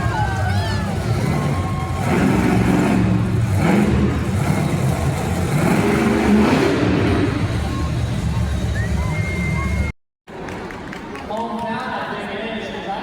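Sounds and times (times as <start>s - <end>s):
engine revving hard: 0.9s - 8.6s.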